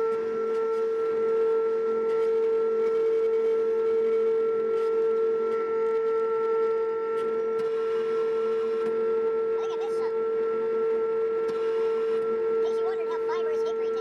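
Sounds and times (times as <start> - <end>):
forestry mulcher high-pitched whine: 7.3 - 14.0.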